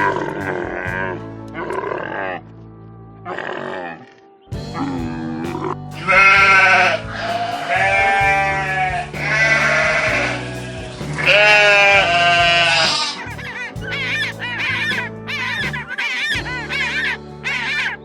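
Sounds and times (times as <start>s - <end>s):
background music: 0.0s - 18.0s
sheep or goat bleating: 4.8s - 13.2s.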